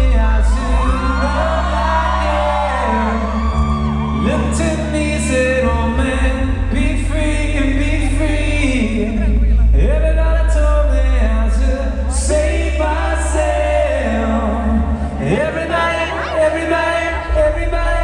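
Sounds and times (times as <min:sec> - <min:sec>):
person singing: 0:00.0 - 0:18.0.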